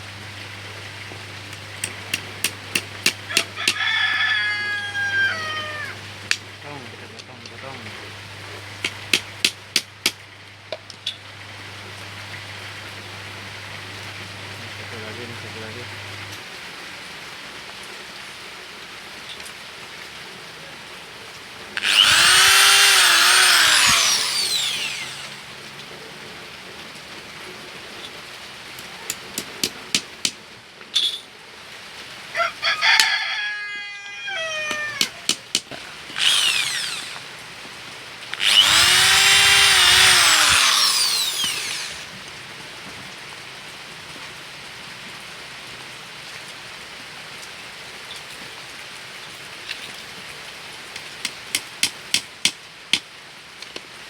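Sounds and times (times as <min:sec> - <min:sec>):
rooster crowing: 0:03.3 - 0:06.1, 0:32.3 - 0:35.2
rain patter: 0:10.2 - 0:21.8, 0:25.6 - 0:29.1, 0:42.2 - 0:51.3.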